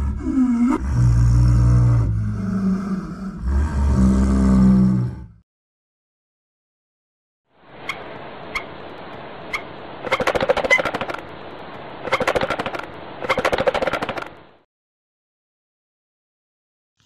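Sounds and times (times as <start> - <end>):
steady hiss: 7.5 - 13.4
stork clattering bill: 9.5 - 11.2.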